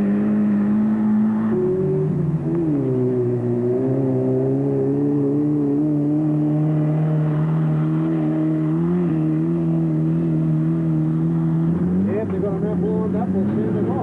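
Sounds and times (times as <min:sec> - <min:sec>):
race car engine running: 0:00.0 - 0:14.0.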